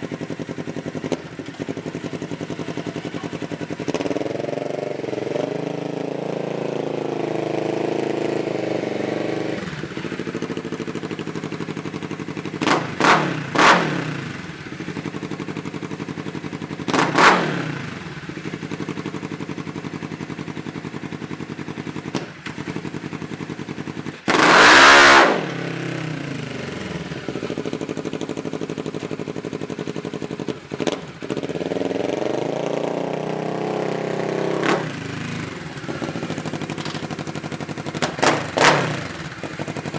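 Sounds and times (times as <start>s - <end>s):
off-road vehicle engine revving: 2.6s - 11.6s, 12.5s - 14.9s, 16.8s - 18.4s, 24.2s - 27.9s, 30.8s - 39.9s.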